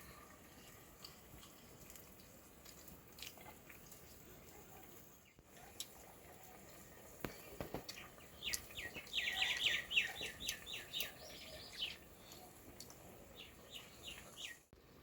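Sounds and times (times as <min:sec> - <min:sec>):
bird chirping rapidly: 0:08.0 - 0:12.0.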